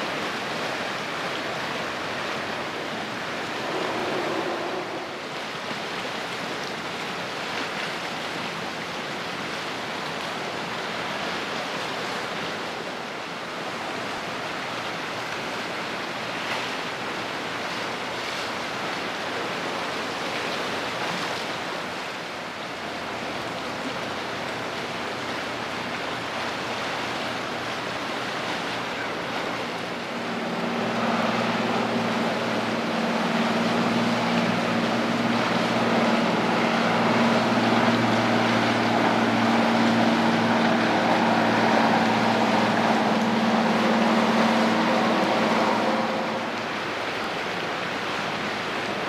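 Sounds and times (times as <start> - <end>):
ship engine hum: 0.0 - 49.0
water rushing: 0.0 - 49.0
wind: 0.0 - 49.0.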